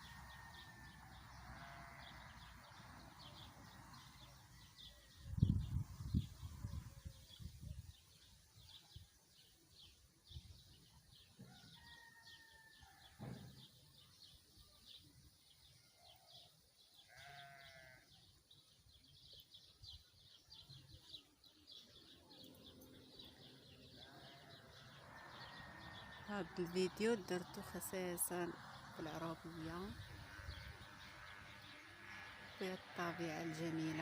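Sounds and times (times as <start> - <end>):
distant farm animal bleating: 1.4 - 2.8, 17.0 - 18.3, 23.9 - 34.0.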